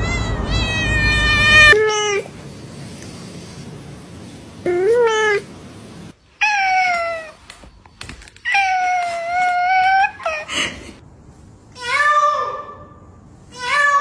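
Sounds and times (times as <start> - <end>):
cat meowing: 0.0 - 2.3.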